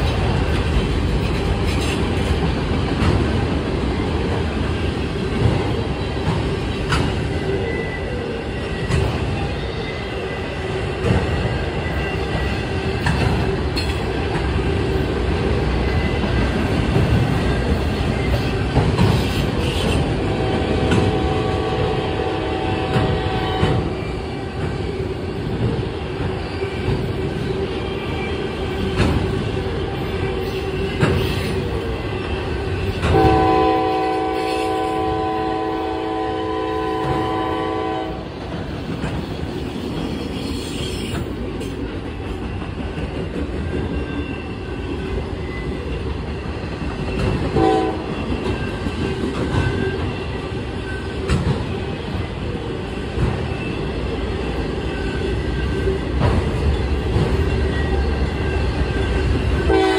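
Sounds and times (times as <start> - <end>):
train knocks: 0.0 - 7.7, 8.6 - 9.6, 10.7 - 59.9
train wheels rumbling on rail: 0.0 - 59.9
locomotive air horn: 19.6 - 23.9, 33.0 - 38.3, 47.5 - 48.2, 59.7 - 59.9.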